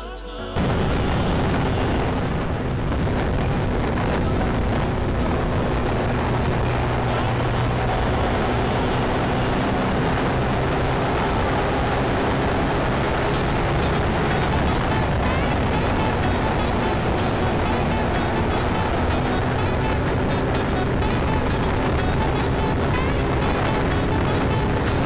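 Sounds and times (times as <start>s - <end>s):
wind noise on microphone: 0.6s - 25.0s
scooter engine running: 3.6s - 25.0s.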